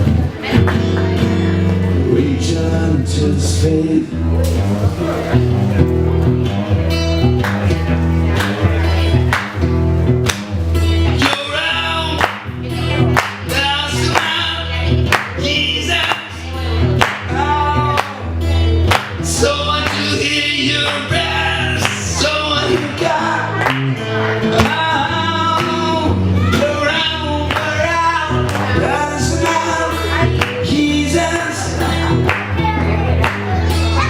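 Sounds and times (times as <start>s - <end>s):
bass notes: 0.0s - 34.0s
person singing: 10.9s - 34.0s.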